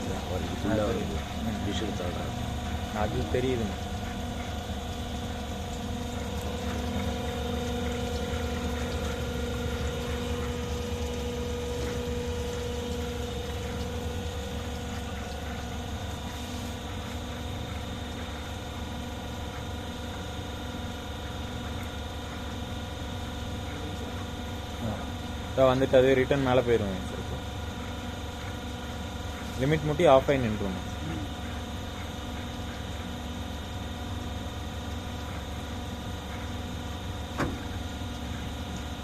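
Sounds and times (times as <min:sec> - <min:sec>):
cutting machine humming: 0:00.0 - 0:18.2.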